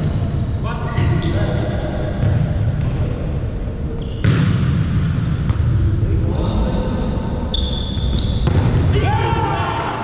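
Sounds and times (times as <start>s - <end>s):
shoe squeaks: 0.0s - 1.5s, 3.9s - 4.4s, 5.2s - 5.6s, 7.3s - 8.5s
sports hall rumble: 0.0s - 10.0s
volleyball hit: 8.4s - 8.9s.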